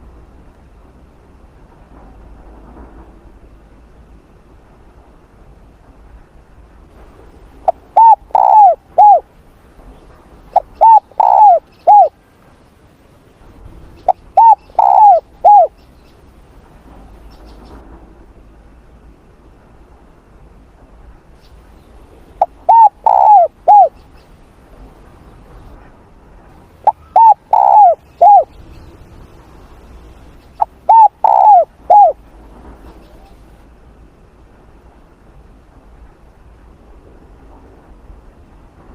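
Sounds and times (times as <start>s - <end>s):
dove cooing: 7.6s - 9.2s, 10.5s - 12.2s, 14.0s - 15.8s, 22.4s - 24.0s, 26.8s - 28.6s, 30.6s - 32.2s.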